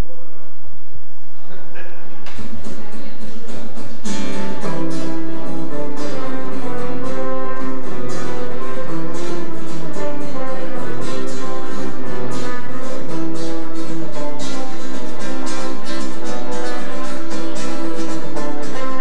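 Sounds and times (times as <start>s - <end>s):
strummed acoustic guitar: 2.2s - 19.0s.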